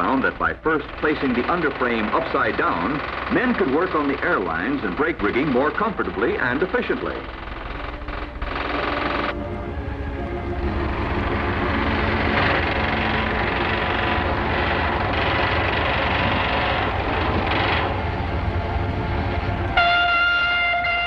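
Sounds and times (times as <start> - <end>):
clatter of railroad shop work: 0.0 - 9.4, 10.7 - 21.0
horn or whistle blast: 17.0 - 21.0.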